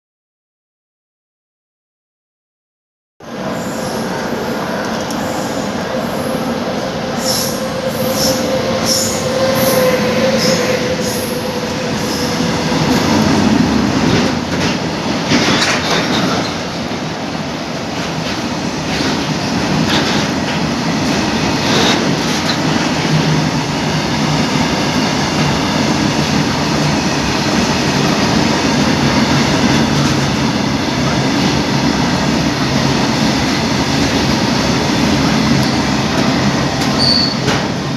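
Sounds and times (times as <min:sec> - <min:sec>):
train wheels rumbling on rails: 0:03.2 - 0:37.9
steady high tone: 0:03.3 - 0:14.4, 0:32.8 - 0:37.0.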